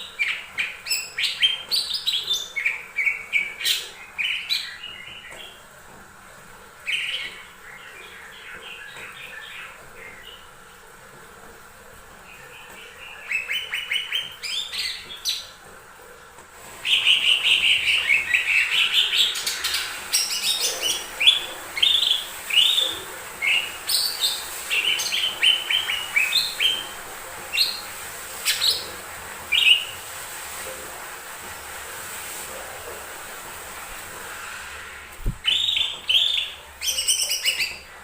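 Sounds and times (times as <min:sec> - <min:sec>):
bird singing chirps and warbles: 0:00.0 - 0:05.7, 0:06.8 - 0:10.6, 0:12.2 - 0:15.6, 0:35.4 - 0:37.9.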